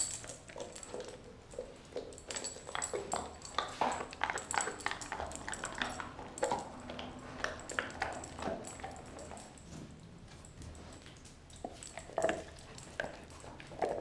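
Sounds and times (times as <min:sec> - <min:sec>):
teeth clicking on bone: 0:00.0 - 0:09.4
dog chewing meat and bone: 0:00.0 - 0:14.0.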